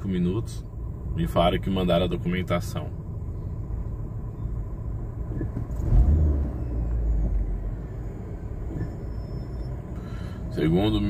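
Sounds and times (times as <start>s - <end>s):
road noise inside cabin: 0.0s - 11.0s
van engine rumble: 0.0s - 11.0s.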